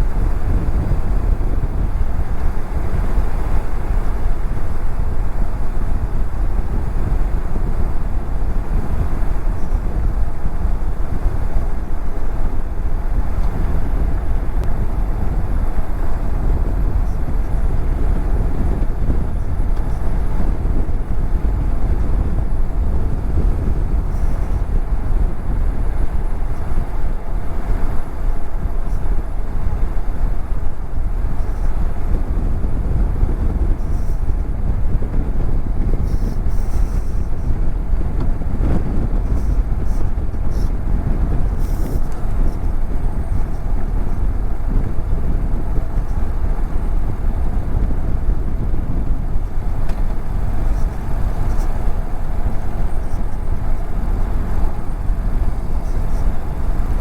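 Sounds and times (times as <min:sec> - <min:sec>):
wind rumble on microphone: 0:00.0 - 0:57.0
motorcycle engine running: 0:30.8 - 0:57.0.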